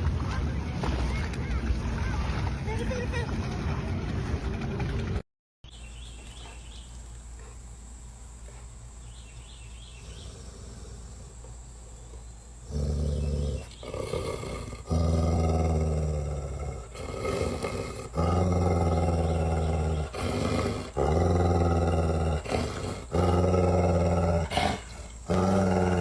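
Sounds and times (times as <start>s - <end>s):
animal growling: 9.9s - 26.0s.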